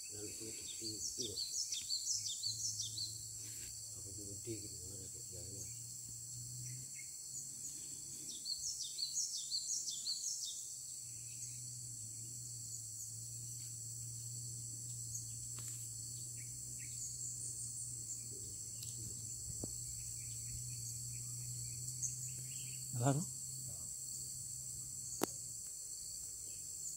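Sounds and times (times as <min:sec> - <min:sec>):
high drone of insects: 0:00.0 - 0:26.9.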